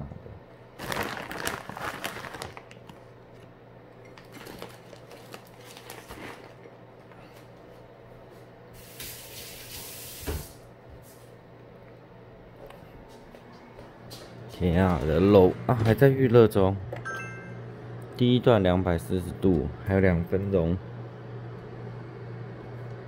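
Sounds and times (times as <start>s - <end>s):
steady low hum: 2.5s - 8.8s, 10.6s - 23.0s.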